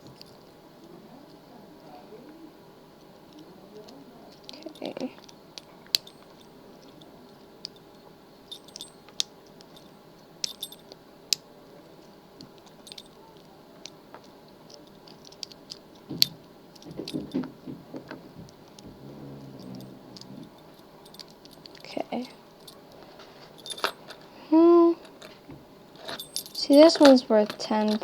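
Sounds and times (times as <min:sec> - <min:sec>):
lock picks clicking and rattling: 0:03.0 - 0:11.5, 0:12.4 - 0:24.3, 0:25.0 - 0:28.0.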